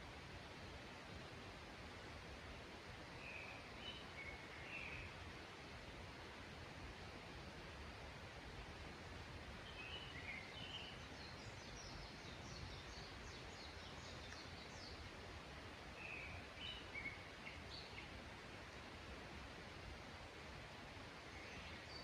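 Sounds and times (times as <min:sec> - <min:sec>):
faint background hiss: 0:00.0 - 0:22.0
songbirds calling: 0:03.1 - 0:05.2, 0:09.6 - 0:18.4, 0:21.1 - 0:22.0.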